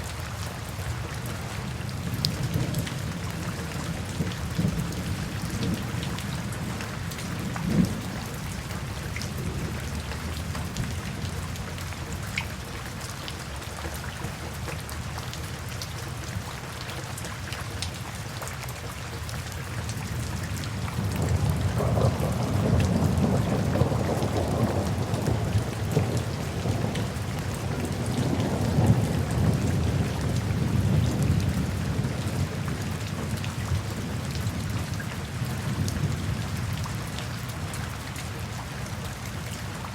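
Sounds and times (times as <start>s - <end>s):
steady rain falling: 0.0s - 39.9s
thunder rumbling: 20.8s - 34.9s.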